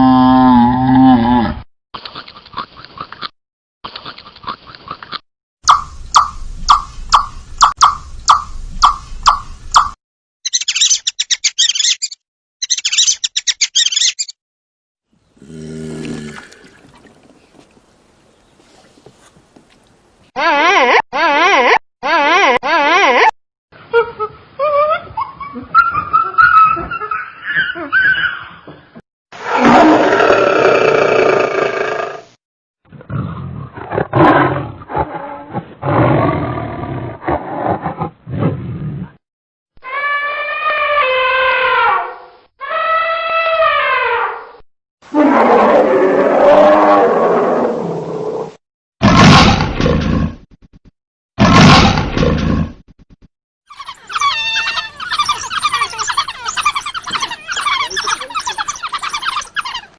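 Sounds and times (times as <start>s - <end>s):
big cat roaring and growling: 0.0s - 1.7s, 15.4s - 16.7s, 29.4s - 32.3s, 32.9s - 39.2s, 45.1s - 50.4s
bird chirping rapidly: 5.7s - 14.4s, 53.7s - 59.9s
low animal call: 53.7s - 59.9s.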